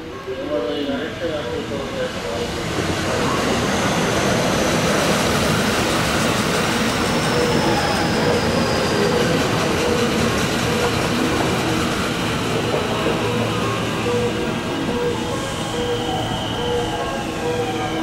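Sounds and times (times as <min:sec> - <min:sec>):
train wheels rumbling on rail: 0:01.1 - 0:18.0
high wheel squeal: 0:06.3 - 0:18.0.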